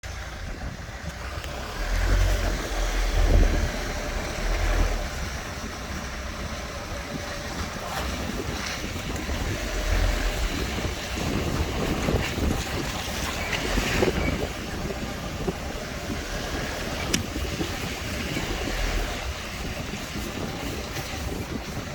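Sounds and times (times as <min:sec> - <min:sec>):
heavy low thumps: 0:00.0 - 0:12.8
road and wind rumble: 0:00.0 - 0:21.9
car creaking and squeaking: 0:00.6 - 0:21.4.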